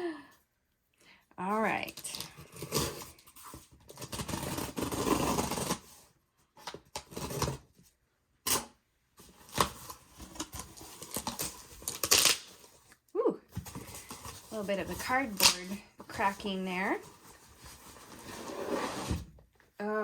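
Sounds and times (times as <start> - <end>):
cardboard scraping and rustling: 2.0 - 7.9, 13.5 - 19.5
cardboard cracking: 9.3 - 12.8.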